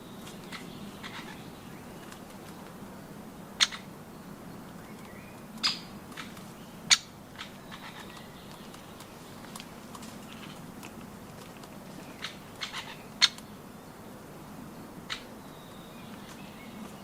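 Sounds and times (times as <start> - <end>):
faint bird chirps: 0.0 - 2.1, 3.6 - 9.1.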